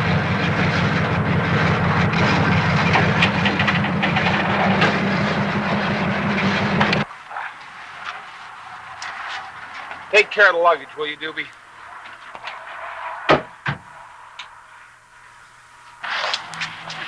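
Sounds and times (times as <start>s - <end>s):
train rumbling: 0.0s - 7.1s.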